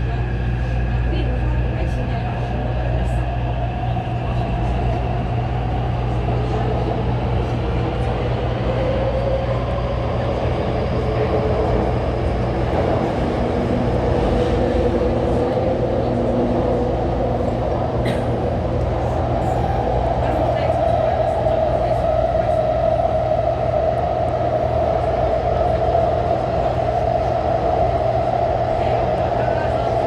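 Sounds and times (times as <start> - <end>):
train wheels rumbling on track: 0.0 - 30.0.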